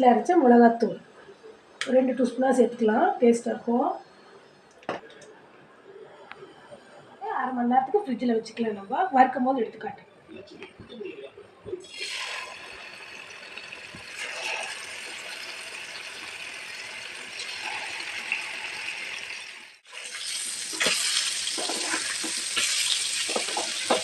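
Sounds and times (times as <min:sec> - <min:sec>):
fish sizzling in oil: 0:11.8 - 0:24.0.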